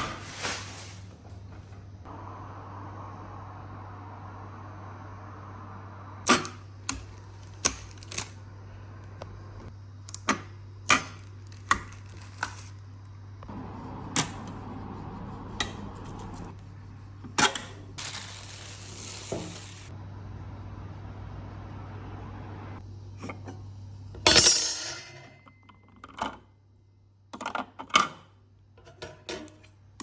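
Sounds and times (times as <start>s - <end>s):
low machine hum: 0.0s - 27.3s
coffee machine hissing: 17.9s - 20.0s.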